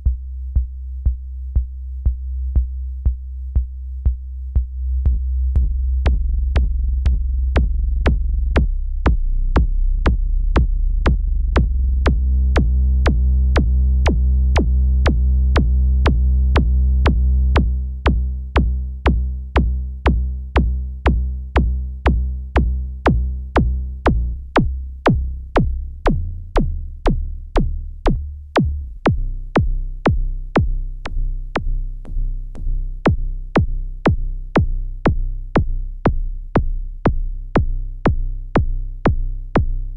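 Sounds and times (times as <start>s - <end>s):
drum machine beat: 0.0s - 39.9s
synthesizer bass: 0.0s - 39.9s.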